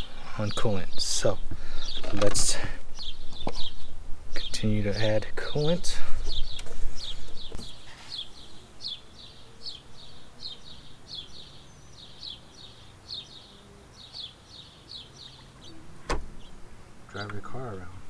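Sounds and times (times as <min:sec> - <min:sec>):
small bird chirping: 0:06.3 - 0:17.8.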